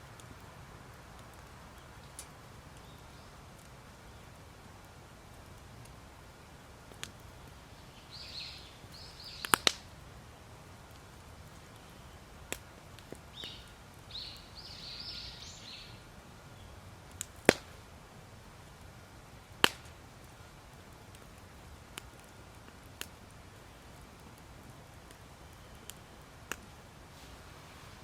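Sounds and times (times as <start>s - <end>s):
campfire wood popping: 0.0s - 28.0s
birds chirping: 7.4s - 9.8s, 13.3s - 16.8s.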